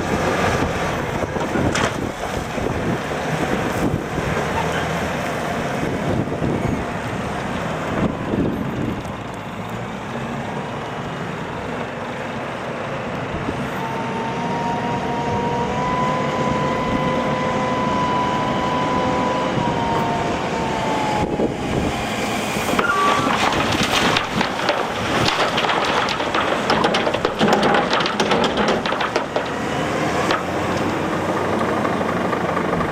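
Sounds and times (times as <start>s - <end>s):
heavy diesel machinery running: 0.0s - 32.9s
clatter of gravel knocks: 1.3s - 2.4s, 22.7s - 31.0s.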